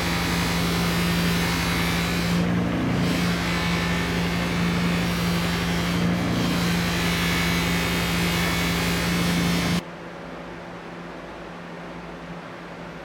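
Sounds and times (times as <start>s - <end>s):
electric machine humming: 0.0s - 9.8s.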